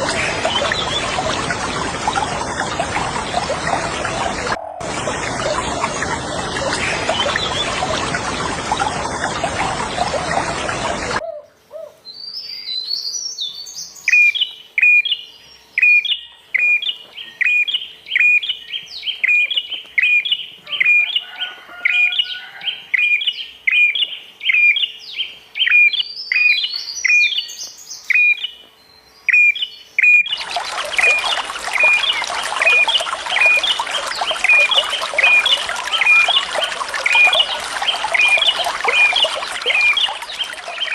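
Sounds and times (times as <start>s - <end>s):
bird twittering: 29.3s - 40.9s
running water hiss: 30.3s - 40.9s.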